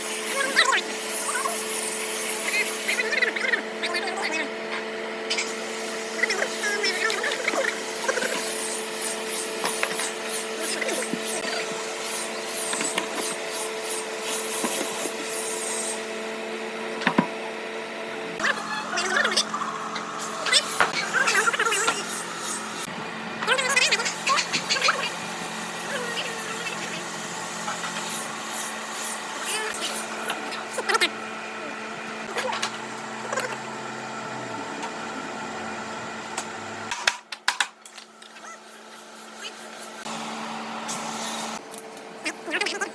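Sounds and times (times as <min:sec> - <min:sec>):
small motor humming: 0:00.0 - 0:37.0, 0:38.0 - 0:42.9
machine hum with hiss: 0:38.2 - 0:41.8.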